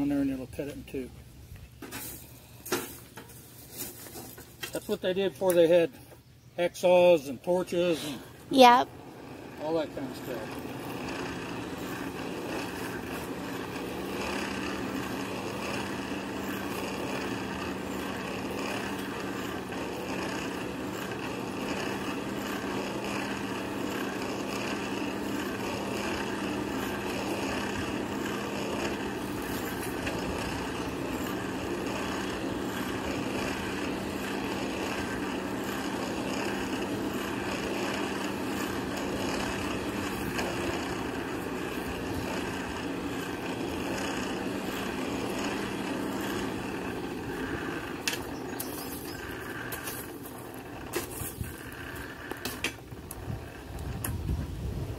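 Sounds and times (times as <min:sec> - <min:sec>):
forge blower humming: 0:06.8 - 0:54.9.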